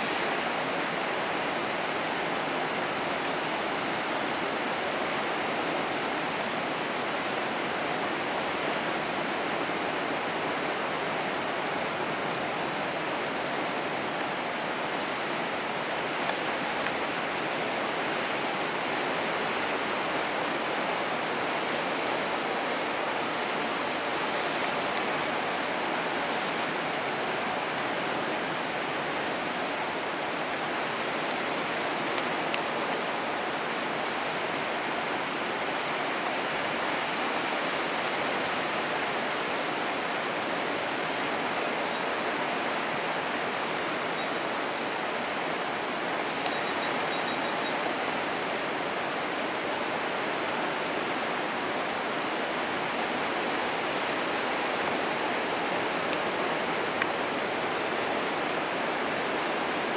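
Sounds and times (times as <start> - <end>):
surf rushing on beach: 0.0 - 59.9.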